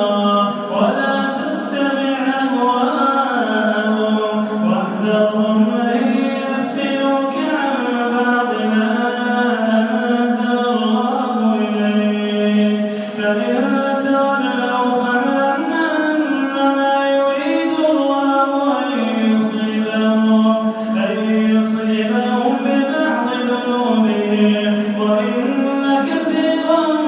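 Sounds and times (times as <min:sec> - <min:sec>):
man chanting melodically: 0:00.0 - 0:27.0
breath: 0:12.8 - 0:13.2, 0:20.6 - 0:21.0, 0:24.8 - 0:25.0.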